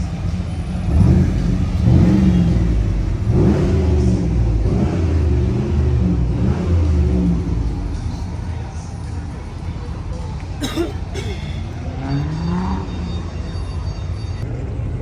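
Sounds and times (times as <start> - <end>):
car engine revving: 0.0 - 14.4.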